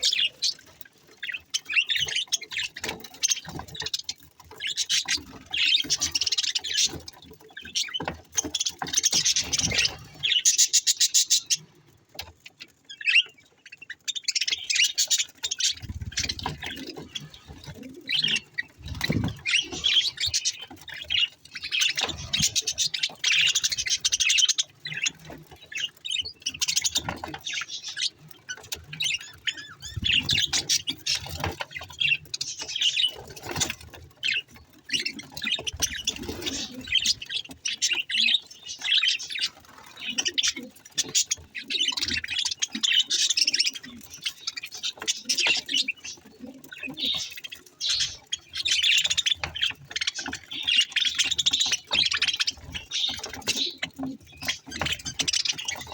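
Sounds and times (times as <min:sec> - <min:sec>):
budgerigars chattering: 0:00.0 - 0:11.7, 0:12.6 - 0:55.9.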